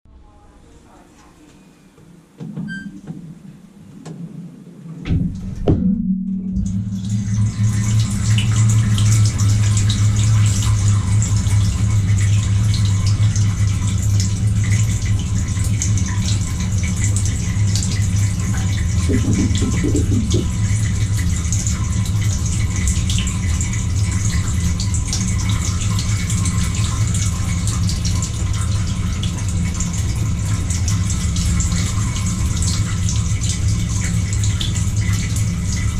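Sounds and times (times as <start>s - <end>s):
wash pump humming: 0.5s - 35.9s
water spraying inside tub: 6.6s - 35.9s
dishwasher knocks: 19.1s - 20.5s.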